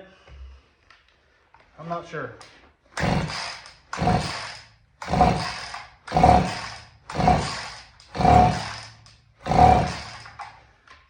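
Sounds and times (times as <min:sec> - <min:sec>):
recoil starter cord yanks: 0:02.9 - 0:10.6
chainsaw engine cranking: 0:02.9 - 0:10.7.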